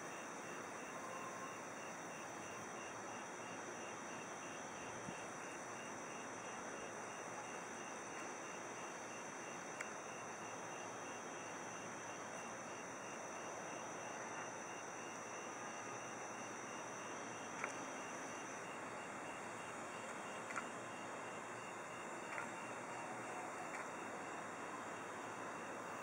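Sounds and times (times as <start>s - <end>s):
crickets chirping: 0.0s - 26.0s
faint click: 9.8s - 10.0s, 17.6s - 17.8s, 20.1s - 20.7s, 23.7s - 24.0s.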